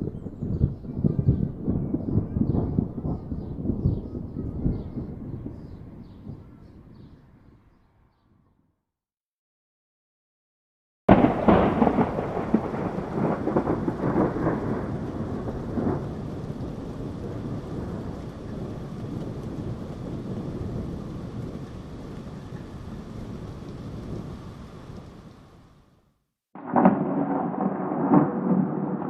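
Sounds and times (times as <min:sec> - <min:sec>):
thunderclap rumbling: 0:00.0 - 0:07.7, 0:11.1 - 0:25.8, 0:26.6 - 0:29.0
steady rain: 0:11.1 - 0:29.0.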